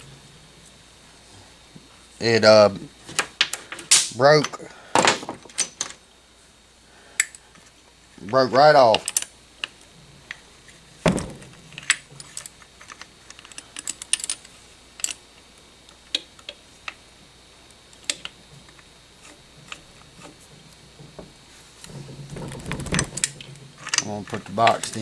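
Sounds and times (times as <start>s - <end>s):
heavy knock: 11.1s - 11.7s.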